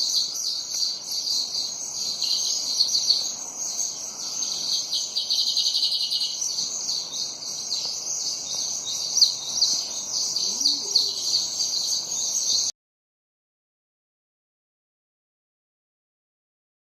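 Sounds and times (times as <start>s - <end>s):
sparrows chirping: 0.0s - 12.7s.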